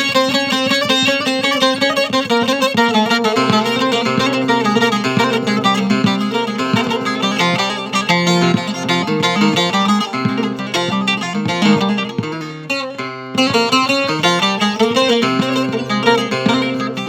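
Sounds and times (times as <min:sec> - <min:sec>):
long-necked lute plucked and strummed: 0:00.0 - 0:17.0.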